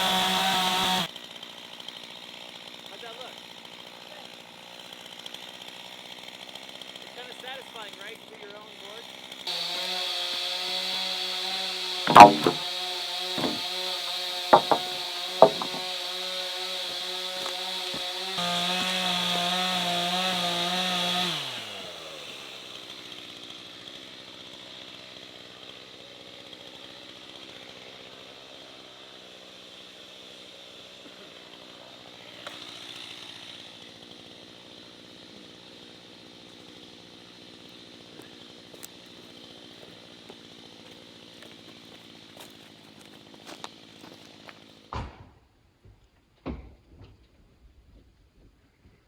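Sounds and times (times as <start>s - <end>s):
chainsaw engine revving and idling: 0.0s - 44.9s.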